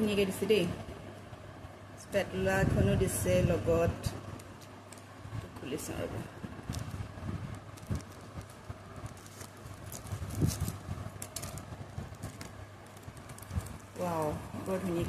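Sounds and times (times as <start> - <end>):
packing material rustling: 4.2 - 5.2, 6.4 - 15.0.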